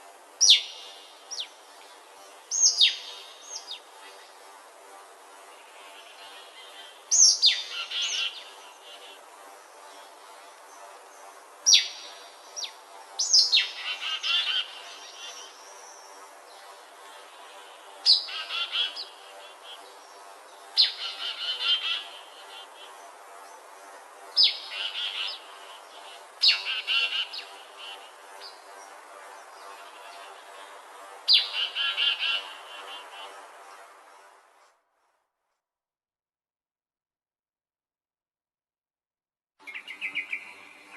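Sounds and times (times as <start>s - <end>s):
songbird warbling: 0.4s - 1.6s, 2.5s - 4.2s, 6.0s - 9.2s, 11.7s - 16.1s, 18.0s - 19.9s, 20.8s - 23.0s, 24.4s - 28.6s, 31.3s - 33.3s.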